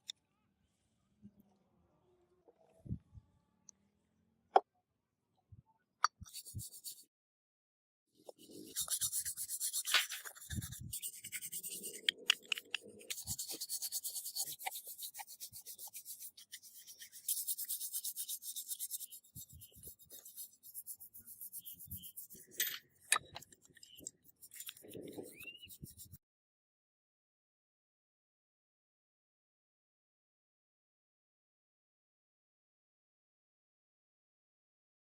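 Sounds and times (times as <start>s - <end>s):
rapid scraping strokes: 6.3s - 7.0s, 8.3s - 22.7s, 23.8s - 26.2s.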